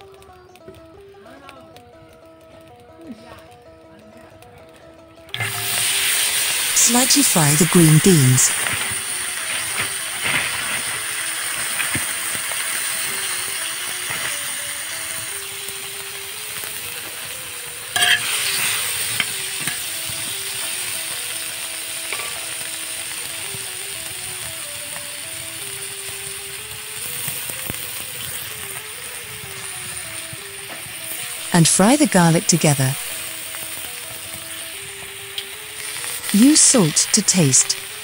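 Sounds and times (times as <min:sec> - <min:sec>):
faint melody: 0:00.0 - 0:22.0, 0:22.6 - 0:38.0
green beans sizzling on griddle: 0:00.0 - 0:38.0
scrape and clatter of stirring: 0:18.0 - 0:18.6.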